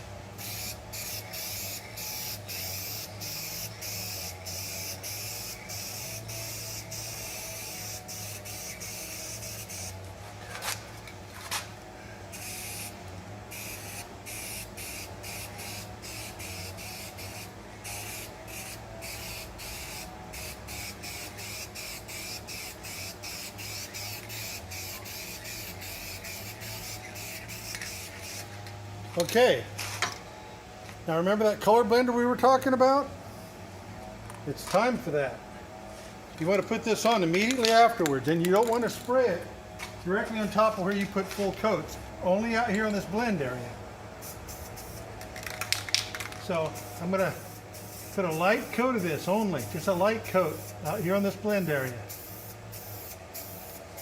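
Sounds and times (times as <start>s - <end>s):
steady low hum: 0.0s - 54.0s
spray paint can hissing: 0.4s - 10.0s, 12.3s - 28.7s, 44.2s - 54.0s.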